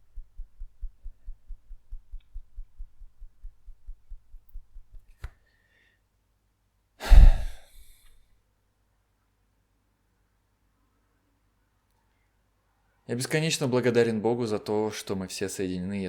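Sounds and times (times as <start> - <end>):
fingertips tapping palm: 0.0 - 5.3
person sighing: 7.0 - 8.0.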